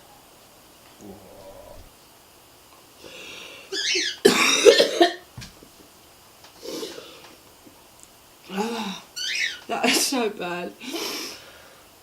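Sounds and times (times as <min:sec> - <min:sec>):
woman coughing and gagging: 0:04.3 - 0:05.2.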